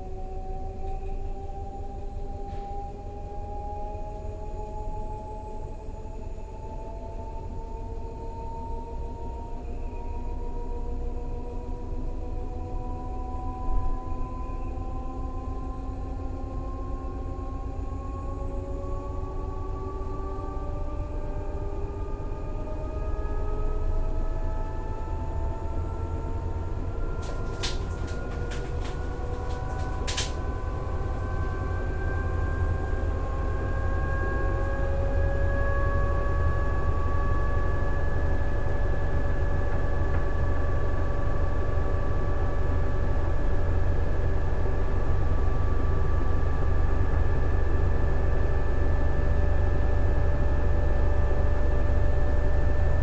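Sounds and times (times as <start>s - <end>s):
washing machine motor whining: 26.7s - 34.0s
sharp clicks: 27.2s - 31.5s.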